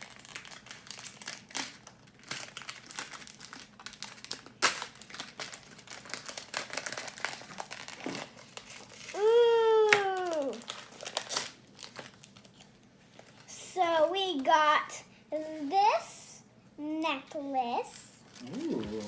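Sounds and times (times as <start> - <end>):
sharp plastic crack: 0.0 - 8.3
plastic packet crinkling: 0.0 - 13.5.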